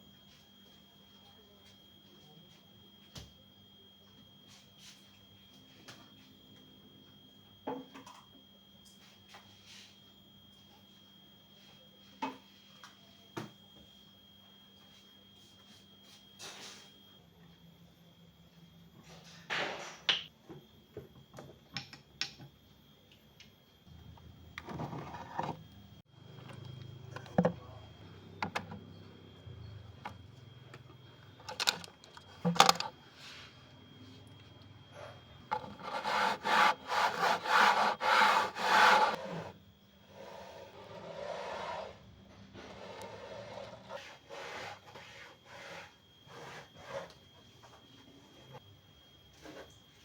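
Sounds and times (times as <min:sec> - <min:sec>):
objects knocking and clicking: 0:31.3 - 0:33.0
rhythmic scrubbing strokes: 0:35.5 - 0:39.5.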